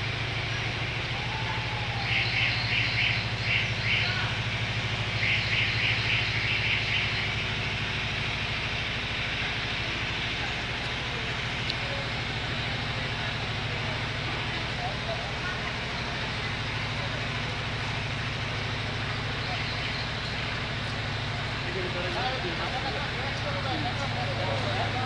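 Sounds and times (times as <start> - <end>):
steady low hum: 0.0 - 25.0
bird chirping: 5.2 - 7.3.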